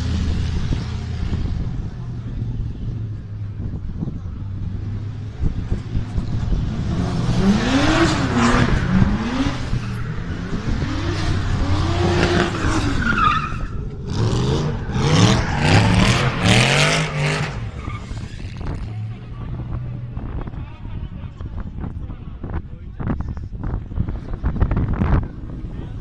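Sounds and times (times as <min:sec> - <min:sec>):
car engines revving: 0:00.0 - 0:26.0
tyres squealing and skidding: 0:04.4 - 0:19.2.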